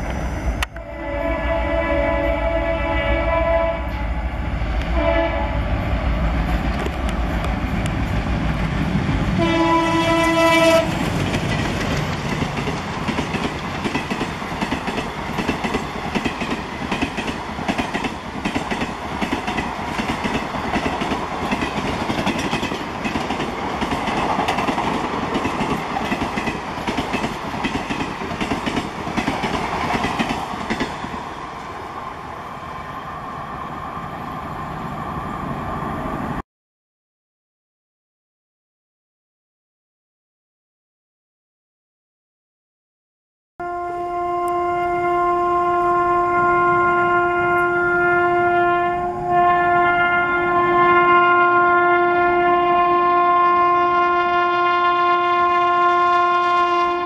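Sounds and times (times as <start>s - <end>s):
train passing at high speed: 0.0s - 36.4s, 43.7s - 57.0s
train horn: 0.7s - 5.9s, 9.3s - 11.1s, 43.6s - 57.0s.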